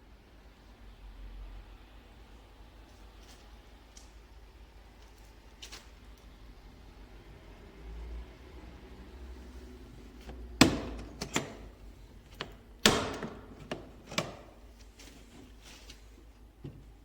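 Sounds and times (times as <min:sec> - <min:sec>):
hard object clunking: 0:10.2 - 0:14.6.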